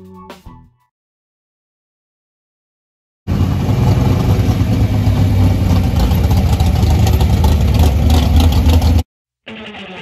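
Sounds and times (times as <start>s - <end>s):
car engine rumbling: 3.3s - 9.0s.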